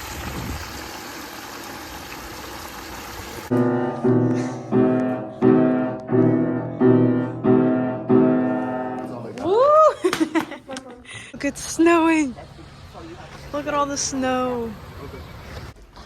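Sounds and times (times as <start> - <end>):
piano chords: 3.5 - 9.4.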